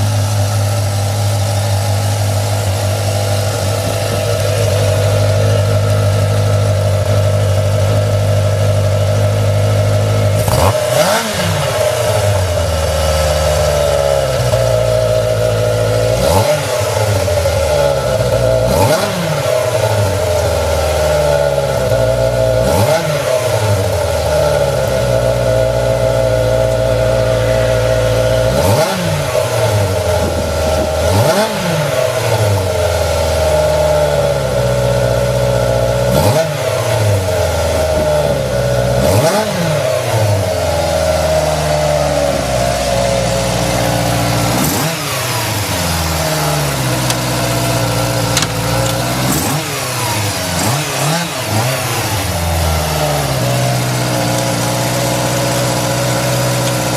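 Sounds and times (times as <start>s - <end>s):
motorcycle engine idling: 0.0s - 56.9s.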